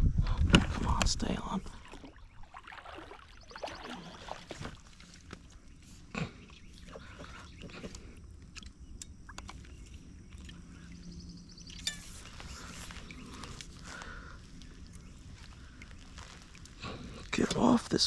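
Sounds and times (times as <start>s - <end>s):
faint clicks and knocks of gear: 7.1s - 10.9s.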